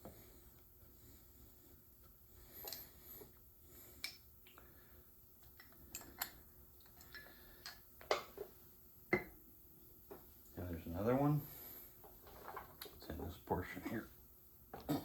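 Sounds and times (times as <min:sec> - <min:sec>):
small metal parts clicking on a bench: 0:05.4 - 0:07.8.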